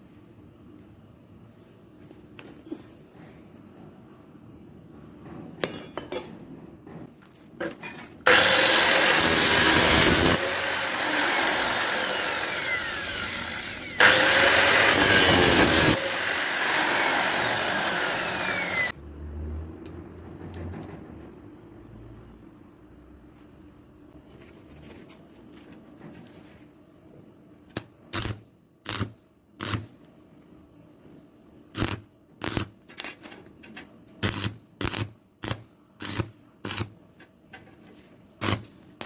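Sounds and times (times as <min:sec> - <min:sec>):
chainsaw attachment sawing wood: 0:08.3 - 0:19.0.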